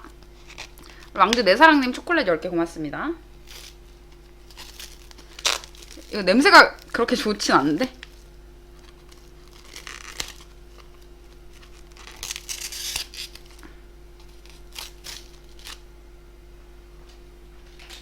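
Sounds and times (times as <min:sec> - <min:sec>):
faint steady hum: 0:00.0 - 0:18.0
plastic packaging crinkling and tearing: 0:00.1 - 0:01.4, 0:03.4 - 0:15.8.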